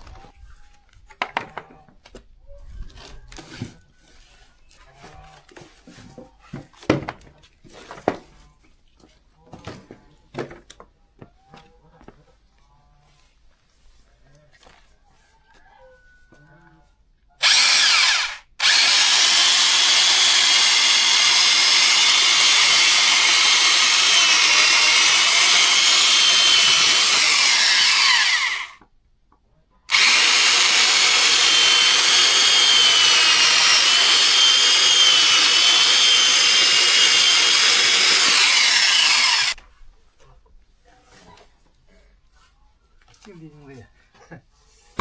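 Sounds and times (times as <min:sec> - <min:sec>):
electric saw cutting wood: 0:17.4 - 0:28.8, 0:29.9 - 0:39.6.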